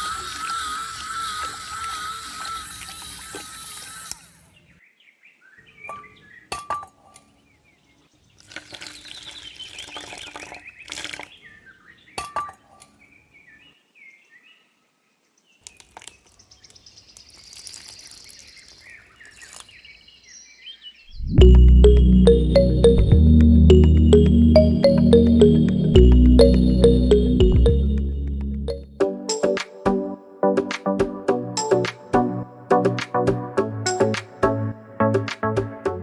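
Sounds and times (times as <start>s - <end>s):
birds chirping: 4.5s - 14.8s, 15.6s - 28.8s.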